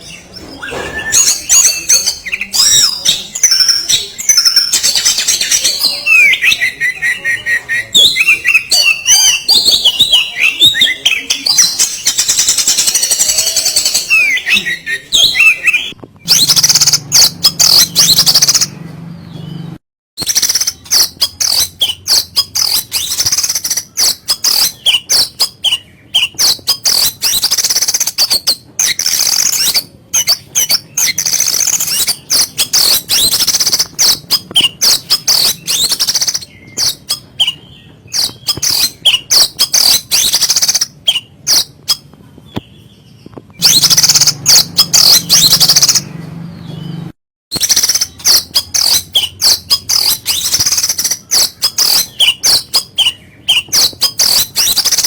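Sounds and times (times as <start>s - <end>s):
bird singing harsh chattering song: 0.0s - 55.0s.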